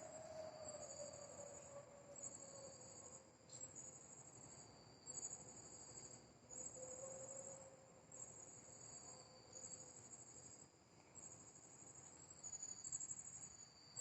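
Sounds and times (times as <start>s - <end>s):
insects trilling: 12.4s - 14.0s.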